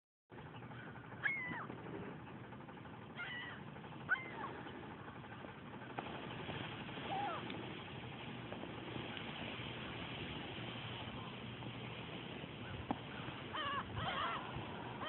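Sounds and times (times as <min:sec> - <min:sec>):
short mewing animal calls: 0:00.7 - 0:01.7, 0:03.2 - 0:04.7, 0:12.6 - 0:15.0.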